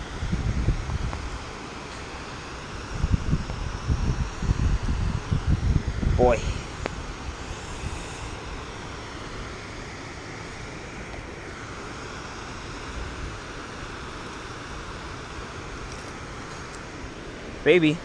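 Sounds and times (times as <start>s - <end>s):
wind rumble on microphone: 0.0s - 9.1s
rain hissing on a river: 0.0s - 18.0s.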